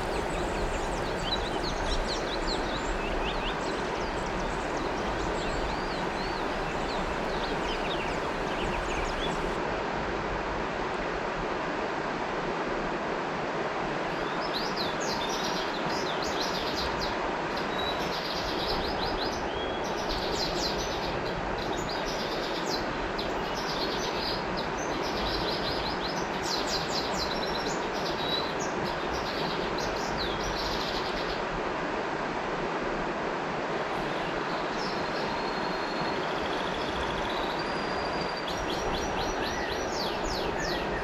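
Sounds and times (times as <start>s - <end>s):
birds chirping: 0.0s - 9.6s, 34.8s - 41.0s
river water rushing: 0.0s - 15.9s, 25.8s - 41.0s.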